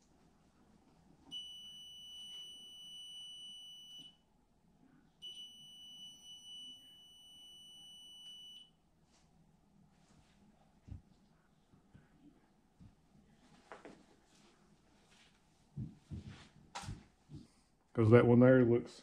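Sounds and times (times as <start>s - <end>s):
stud finder high-pitched tone: 1.3s - 4.2s, 5.2s - 8.8s.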